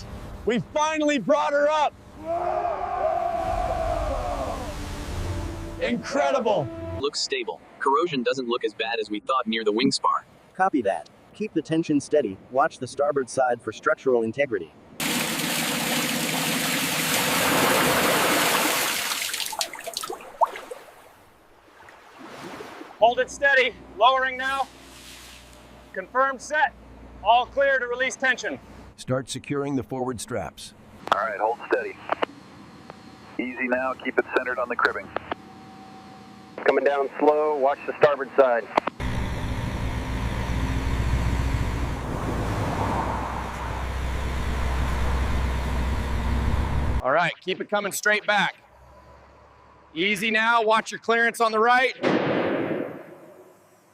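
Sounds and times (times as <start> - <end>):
water pouring: 15.0 - 21.0
heavy machinery engine running: 30.7 - 47.0.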